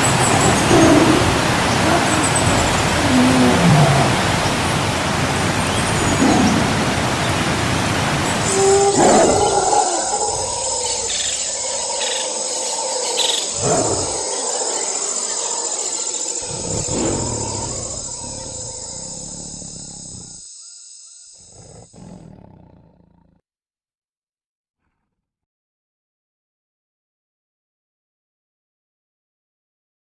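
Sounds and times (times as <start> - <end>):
wild animal calls: 0.0 - 20.6, 21.4 - 23.3.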